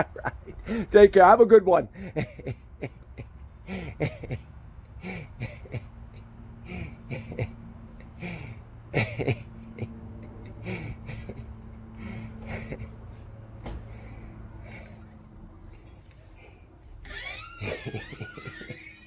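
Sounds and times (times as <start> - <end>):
steady low hum: 0.0 - 18.4.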